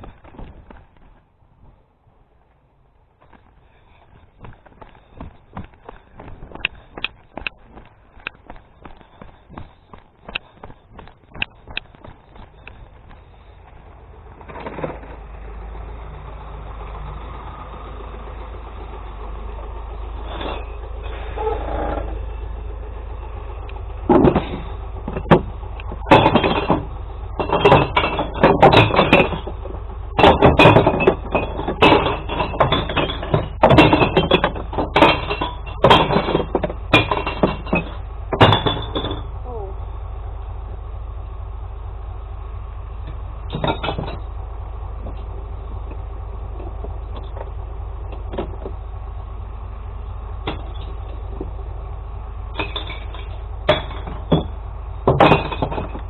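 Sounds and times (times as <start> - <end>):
truck engine rumbling: 0.0 - 56.0
glass bottles crashing: 26.1 - 29.6, 30.2 - 39.3, 52.6 - 54.5, 55.1 - 56.0.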